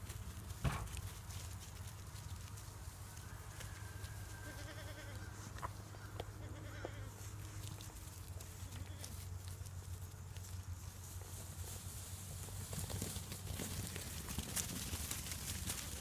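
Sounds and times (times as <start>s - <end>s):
sheep bleating faintly: 4.0s - 5.4s.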